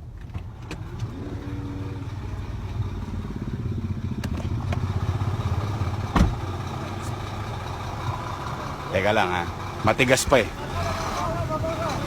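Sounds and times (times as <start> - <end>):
engine idling: 0.5 - 12.0
loud thump: 6.1 - 6.5.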